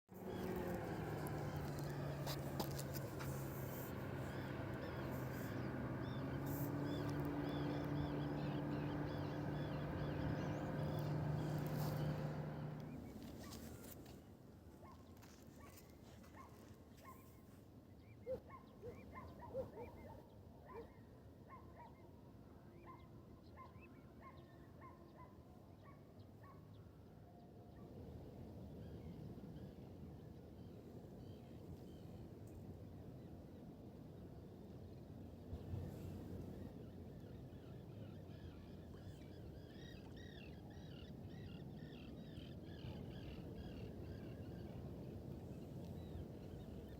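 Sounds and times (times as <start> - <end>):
river rumbling: 0.1 - 13.8.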